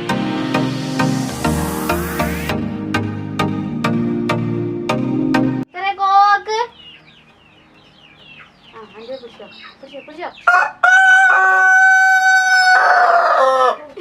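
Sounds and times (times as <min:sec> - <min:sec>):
rooster crowing: 0:10.4 - 0:13.9.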